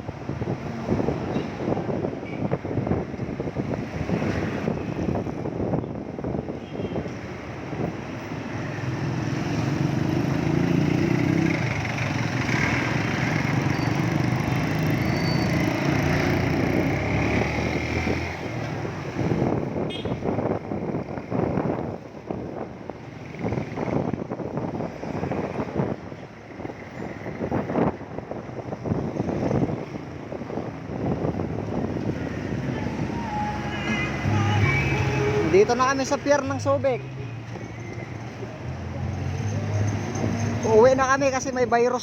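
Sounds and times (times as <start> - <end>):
wind buffeting microphone: 0.0 - 8.2, 15.6 - 35.6.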